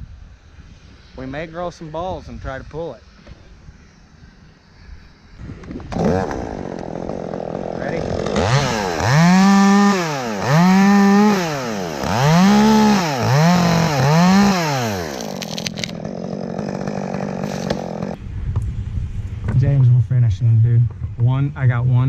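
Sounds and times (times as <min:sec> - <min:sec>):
chainsaw revving: 0:05.6 - 0:18.2.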